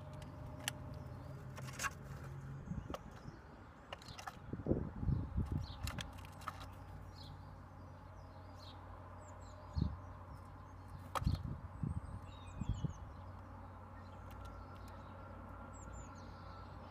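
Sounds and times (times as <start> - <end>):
birds pecking taps and thumps: 0.0 - 7.3, 10.5 - 11.7, 13.2 - 15.6
distant high bird chirps: 5.0 - 16.9.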